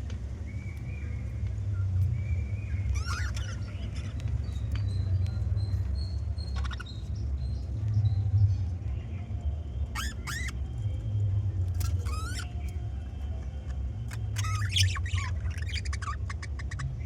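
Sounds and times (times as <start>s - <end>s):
budgerigars chirping: 2.8s - 5.0s, 6.4s - 7.2s, 9.9s - 10.6s, 11.8s - 12.7s, 14.1s - 17.0s.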